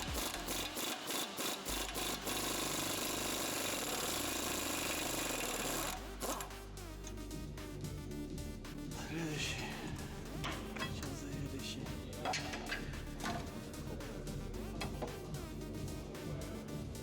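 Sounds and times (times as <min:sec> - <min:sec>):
power tool rattling: 0:00.0 - 0:06.6.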